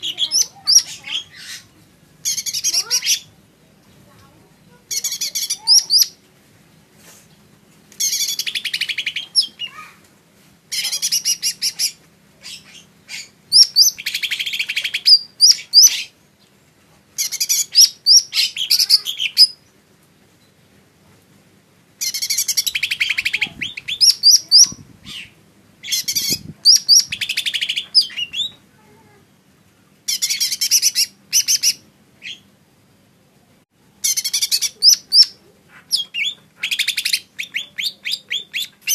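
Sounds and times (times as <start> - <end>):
bird chirping rapidly: 0.0 - 3.4, 4.9 - 6.2, 8.0 - 9.9, 10.7 - 16.1, 17.2 - 19.7, 22.0 - 28.6, 30.1 - 32.5, 34.0 - 38.9.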